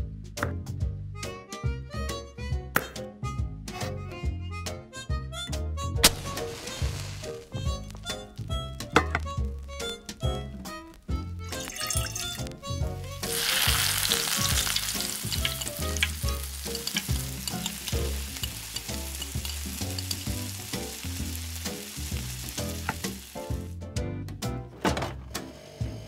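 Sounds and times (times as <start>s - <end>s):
background music: 0.0s - 26.0s
food sizzling in oil: 6.0s - 23.7s.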